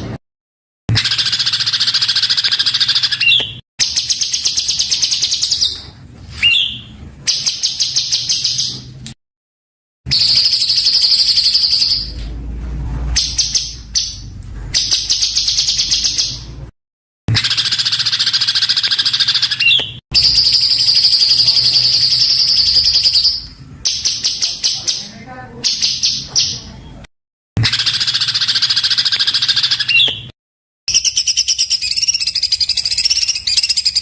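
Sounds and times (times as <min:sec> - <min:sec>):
upward-sliding whistles: 0:06.3 - 0:06.9.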